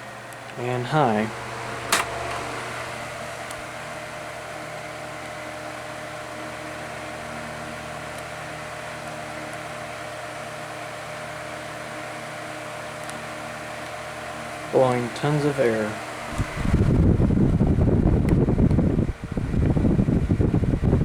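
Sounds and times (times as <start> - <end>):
table fan running: 0.0 - 21.0.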